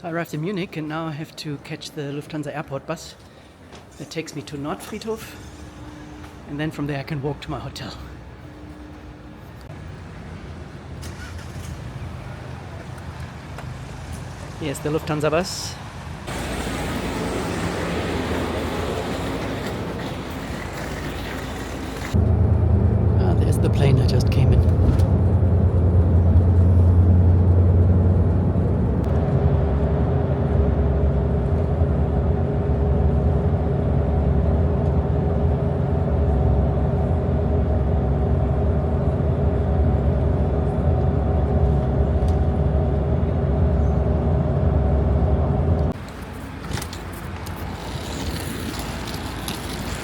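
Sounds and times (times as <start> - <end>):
road rumble: 2.5 - 50.0
coach engine drone: 4.8 - 15.0, 16.0 - 49.9.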